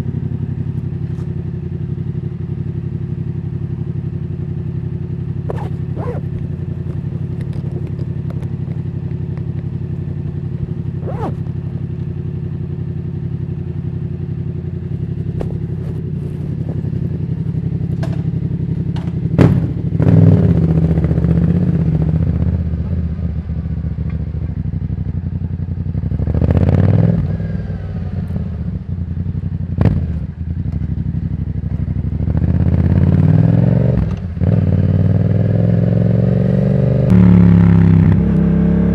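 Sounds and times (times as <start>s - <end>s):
motorcycle engine revving: 4.6s - 12.8s, 14.8s - 18.2s.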